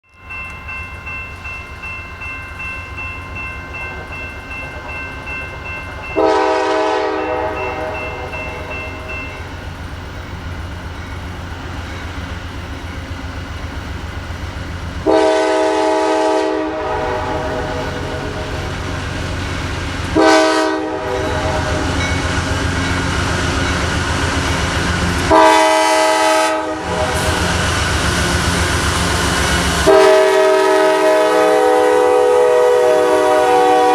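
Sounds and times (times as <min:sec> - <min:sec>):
locomotive air horn blasts: 0:06.2 - 0:08.7, 0:15.0 - 0:18.7, 0:20.1 - 0:22.0, 0:25.3 - 0:27.5, 0:29.8 - 0:33.9.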